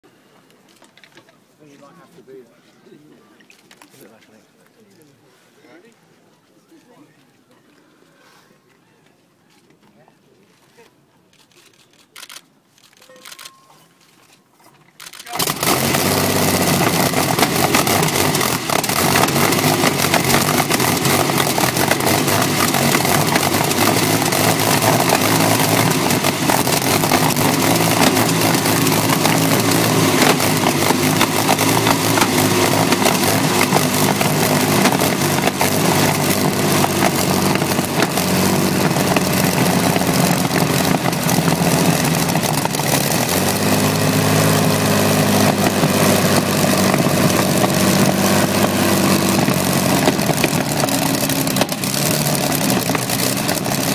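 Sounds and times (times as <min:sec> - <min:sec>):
aero engine running loudly: 0:15.4 - 0:53.9.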